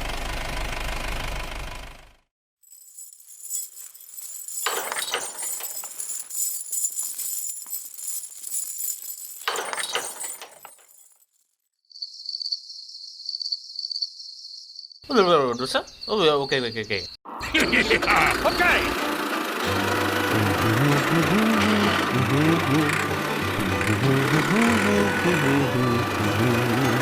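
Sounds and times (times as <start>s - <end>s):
high jingling shimmer: 2.6s - 11.3s, 19.6s - 27.0s
high pulsing chirp: 11.9s - 17.2s.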